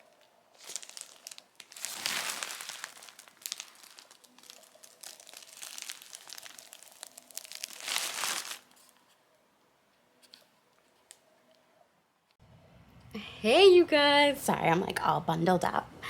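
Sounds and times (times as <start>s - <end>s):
parcel packaging rustling: 0.0s - 9.0s.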